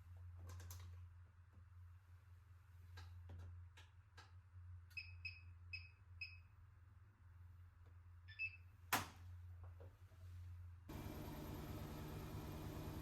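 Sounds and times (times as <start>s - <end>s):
steady low hum: 10.9s - 13.0s.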